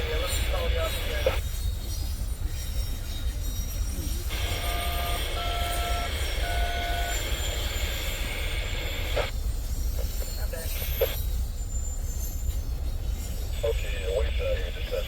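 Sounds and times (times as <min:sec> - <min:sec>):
radio hiss: 0:00.0 - 0:01.4, 0:04.3 - 0:09.3, 0:10.0 - 0:11.2, 0:13.6 - 0:15.0
touch-tone beeps: 0:04.3 - 0:09.3.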